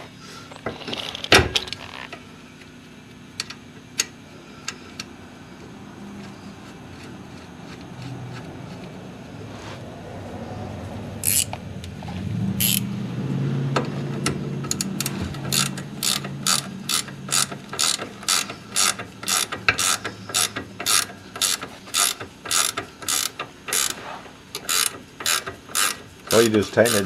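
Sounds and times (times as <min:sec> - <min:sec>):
ratchet wrench pawl clicking: 0:11.2 - 0:11.6, 0:12.6 - 0:12.9, 0:14.7 - 0:27.0.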